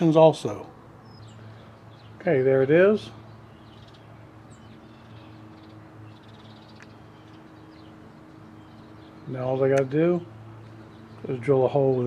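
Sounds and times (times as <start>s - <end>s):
bird chirps: 1.0s - 12.0s.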